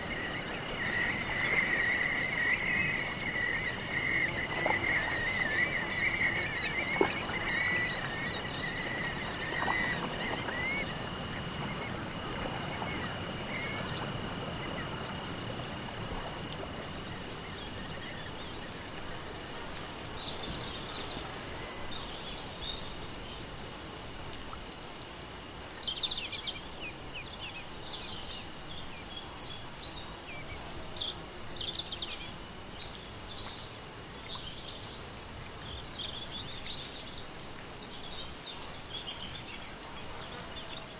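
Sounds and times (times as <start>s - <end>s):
birds chirping: 0.0s - 15.1s
insect chirping: 0.0s - 24.8s.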